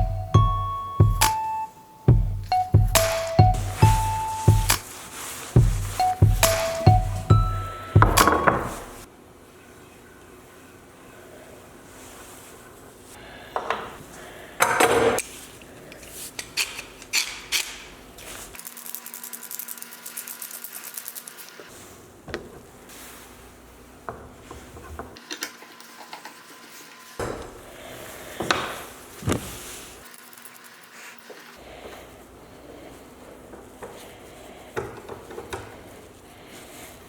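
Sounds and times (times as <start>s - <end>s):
wooden knocks: 5.6s - 9.0s.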